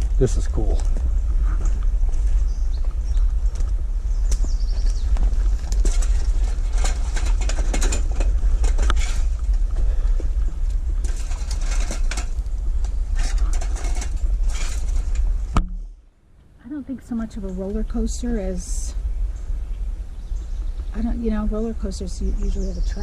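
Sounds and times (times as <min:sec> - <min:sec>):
wind rumbling on microphone: 0:00.0 - 0:16.0, 0:16.6 - 0:23.0
footsteps through dry brush: 0:00.9 - 0:07.3.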